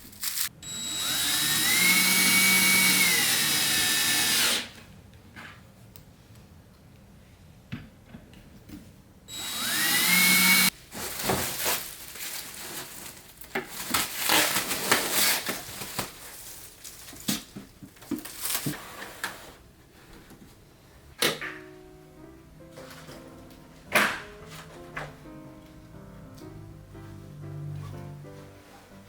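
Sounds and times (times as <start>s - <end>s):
electric drill whining: 0.3s - 4.7s, 9.3s - 10.7s.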